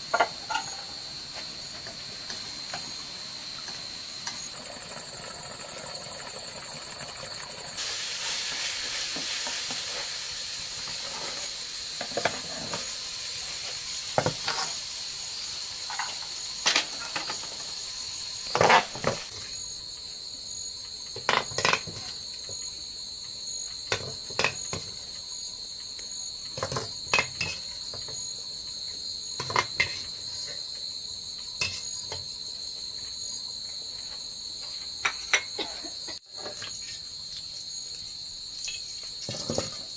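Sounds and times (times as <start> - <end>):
crickets chirring: 0.0 - 39.9
sizzling hiss of frying: 0.0 - 39.9
kitchen utensils clinking: 35.0 - 35.8.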